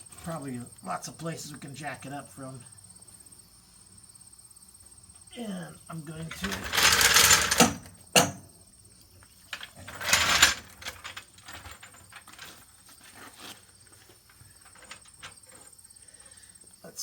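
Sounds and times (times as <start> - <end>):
scraping and rustling: 6.3 - 7.8, 9.2 - 15.8.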